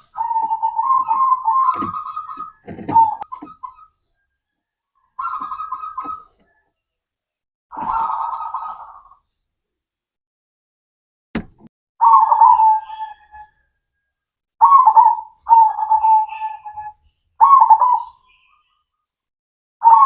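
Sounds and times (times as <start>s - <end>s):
dove cooing: 0.0s - 4.0s, 5.1s - 6.6s, 7.7s - 9.2s, 12.0s - 13.6s, 14.6s - 18.3s.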